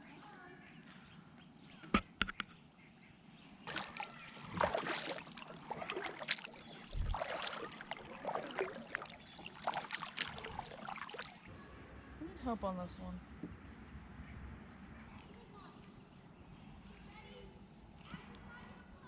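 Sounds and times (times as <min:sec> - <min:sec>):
paddle strokes splashing: 0:03.7 - 0:11.5.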